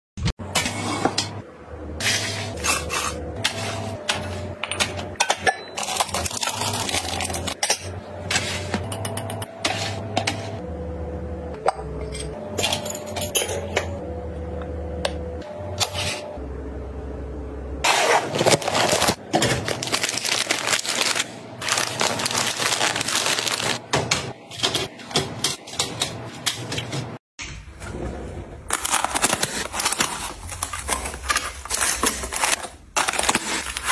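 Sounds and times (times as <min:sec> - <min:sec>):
packaging rustling: 0:17.9 - 0:23.8, 0:28.7 - 0:33.9.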